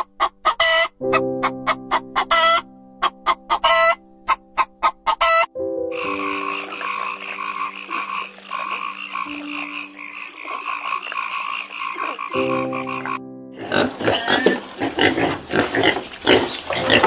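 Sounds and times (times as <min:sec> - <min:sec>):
frog croaking: 0:04.6 - 0:17.0.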